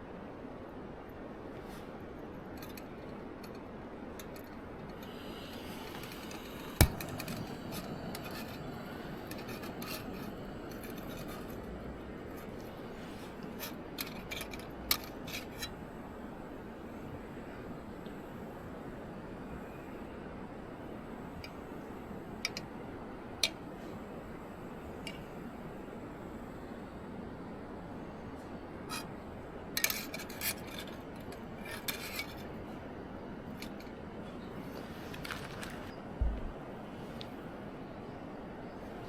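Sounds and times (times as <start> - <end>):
steady hiss: 0.0 - 39.0
rubbing and scraping handling: 4.9 - 15.8, 34.8 - 36.5.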